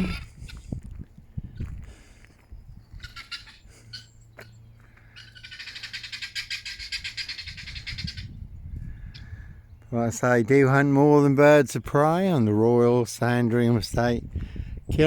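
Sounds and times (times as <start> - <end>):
guinea fowl calling: 0.0 - 0.7, 2.8 - 8.4, 9.0 - 9.5.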